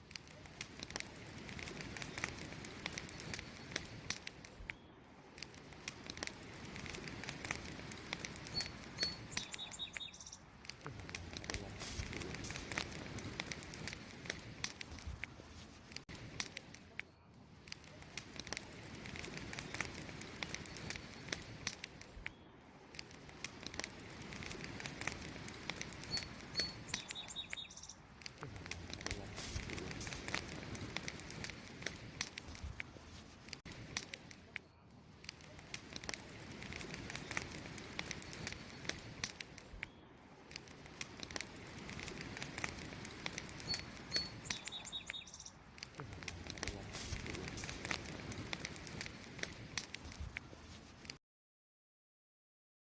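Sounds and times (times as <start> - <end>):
wood fire crackling: 0.0 - 51.2
bird chirping: 8.5 - 10.5, 26.0 - 28.1, 43.6 - 45.6.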